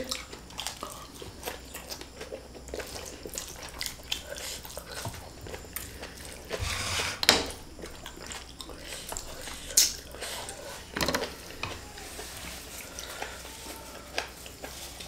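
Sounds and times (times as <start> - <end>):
wet chewing clicks and smacks: 0.1 - 6.6, 7.7 - 10.2.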